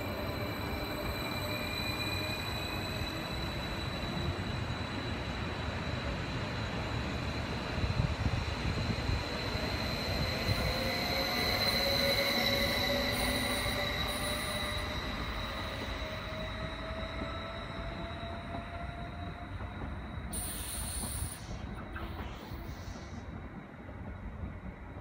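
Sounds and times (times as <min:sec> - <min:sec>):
train running gear rumble: 0:12.7 - 0:25.0
steady high-pitched whine: 0:19.5 - 0:25.0.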